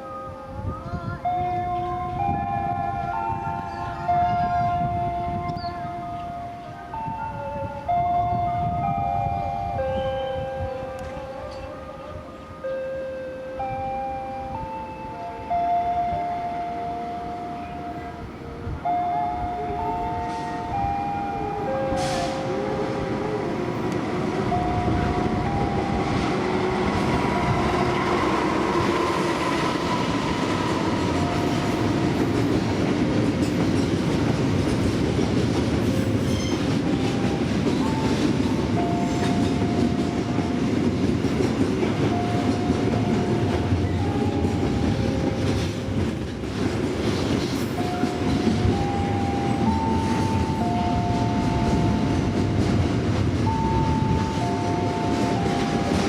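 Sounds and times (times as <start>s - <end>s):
train wheels rumbling and clattering: 17.2s - 56.0s.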